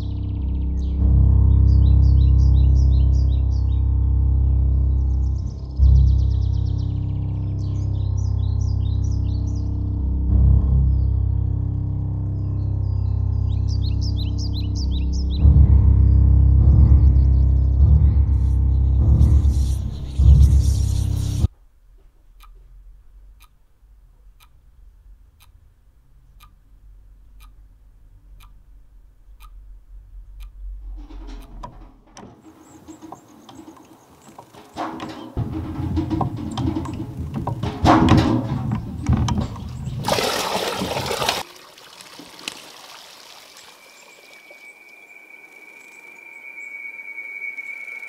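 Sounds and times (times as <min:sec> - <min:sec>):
low rumble: 0:00.0 - 0:32.2
faint ticking: 0:17.8 - 0:37.8
thin high whine: 0:43.8 - 0:48.0.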